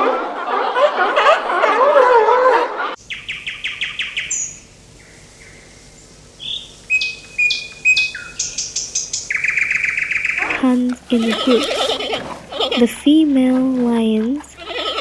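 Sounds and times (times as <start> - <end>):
songbird chirping: 3.0 - 14.7.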